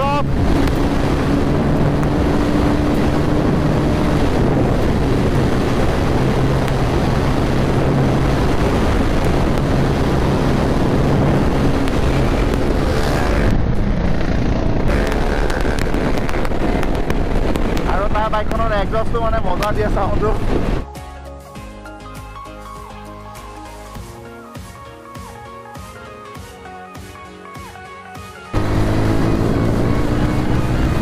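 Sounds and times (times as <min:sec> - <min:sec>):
motorcycle engine running: 0:00.0 - 0:18.6, 0:28.5 - 0:31.0
wind buffeting microphone: 0:00.0 - 0:20.9.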